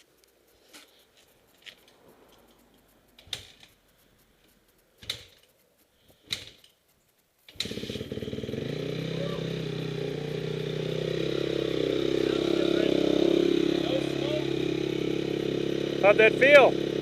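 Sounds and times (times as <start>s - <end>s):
motorcycle engine running: 7.5s - 17.0s.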